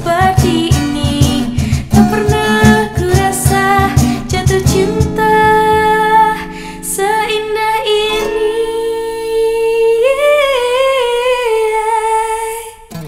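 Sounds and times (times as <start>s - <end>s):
strummed acoustic guitar chord: 0.0s - 9.6s.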